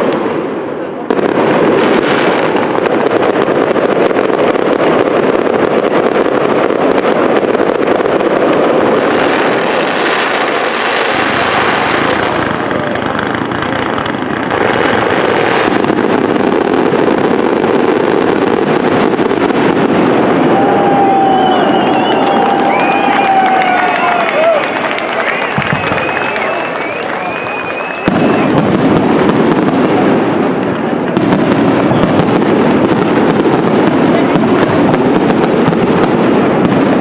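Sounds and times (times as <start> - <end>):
fireworks bursts and crackle: 0.0 - 37.0
high falling firework whistles: 7.6 - 16.0, 19.9 - 29.3, 31.8 - 32.3.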